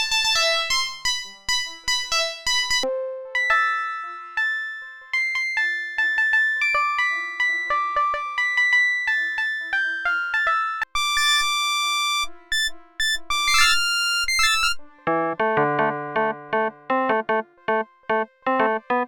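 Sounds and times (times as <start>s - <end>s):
synthesizer melodic phrases: 12.5s - 19.0s
synthesizer chords: 13.4s - 17.4s.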